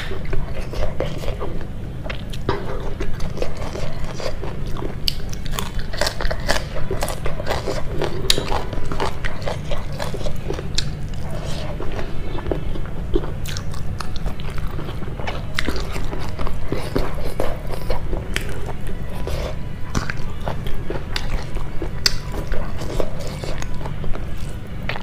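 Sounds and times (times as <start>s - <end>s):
person chewing food: 0.0s - 25.0s
vegetable crunching: 0.0s - 25.0s.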